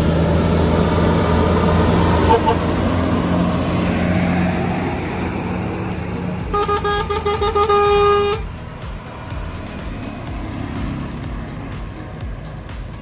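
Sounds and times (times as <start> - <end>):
vehicle engine droning: 0.0 - 13.0
vehicle horn tooting: 2.2 - 2.9, 6.4 - 8.6.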